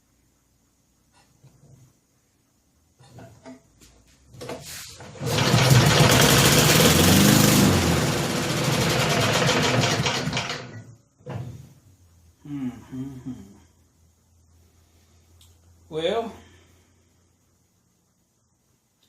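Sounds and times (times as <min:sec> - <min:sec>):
pull start knocks and rattles: 0:04.4 - 0:11.4
small lawn mower engine running: 0:05.0 - 0:10.8.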